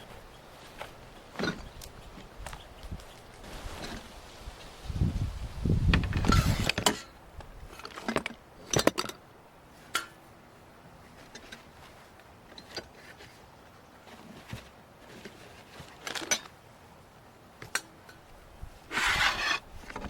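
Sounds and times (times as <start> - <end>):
rumbling rustle: 0.0 - 8.4.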